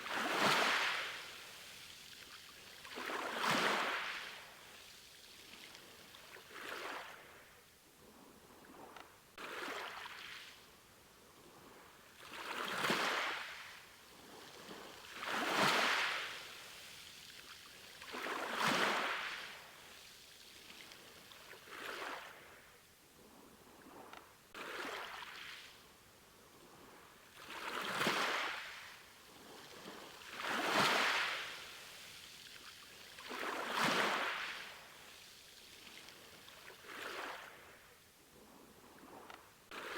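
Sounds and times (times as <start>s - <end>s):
small waves washing in: 0.0s - 7.6s, 12.1s - 22.7s, 27.1s - 37.9s.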